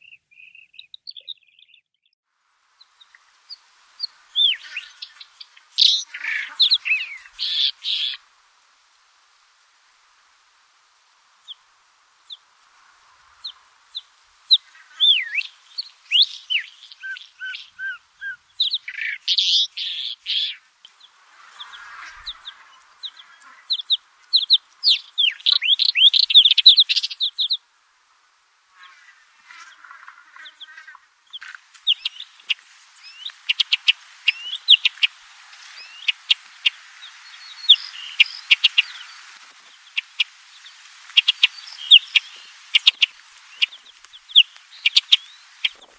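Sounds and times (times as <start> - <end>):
songbird singing: 31.4 - 45.9.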